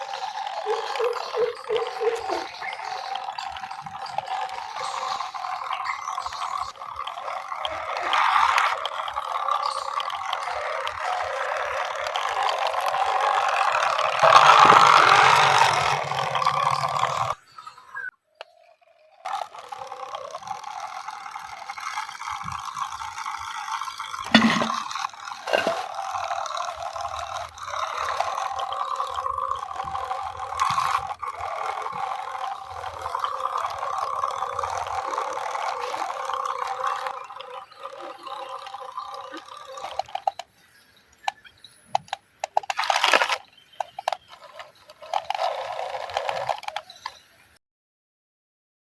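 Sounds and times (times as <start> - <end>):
toy truck motor whirring: 0.0 - 47.6
rattling: 19.3 - 40.5.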